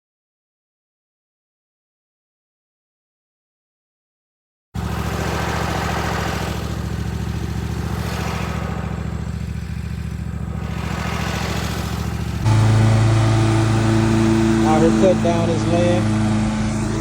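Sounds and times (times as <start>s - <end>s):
heavy machinery engine running: 4.8s - 17.0s.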